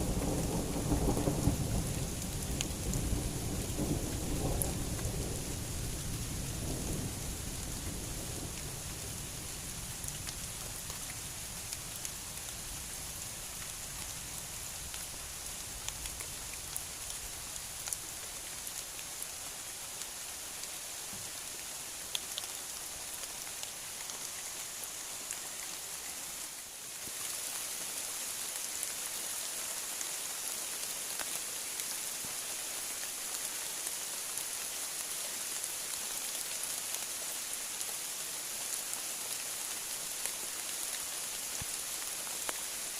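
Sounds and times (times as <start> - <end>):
low rumble of thunder: 0.0 - 10.1
heavy rain falling: 0.0 - 42.9.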